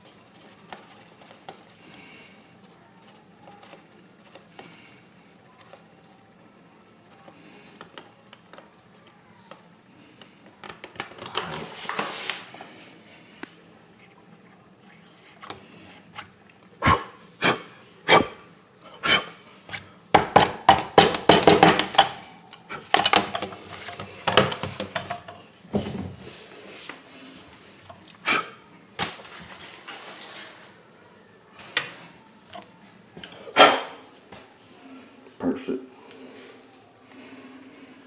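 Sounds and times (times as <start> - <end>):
objects clicking and knocking: 19.7 - 26.0.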